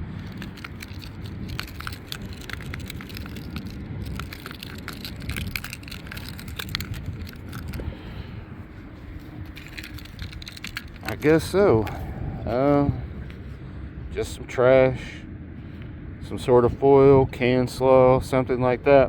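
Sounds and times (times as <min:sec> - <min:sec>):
crackles of trash and soil handled: 0:00.0 - 0:13.4
wind rumbling on microphone: 0:00.0 - 0:19.0.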